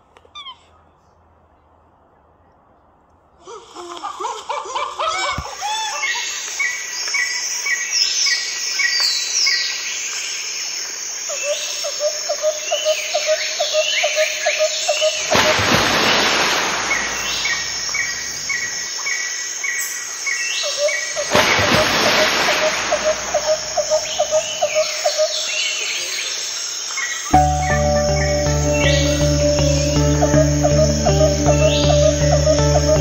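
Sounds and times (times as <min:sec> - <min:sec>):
birds chirping and calling: 0:12.6 - 0:18.9, 0:20.6 - 0:26.1, 0:27.0 - 0:33.0
rushing noise: 0:15.2 - 0:18.8, 0:21.2 - 0:24.7.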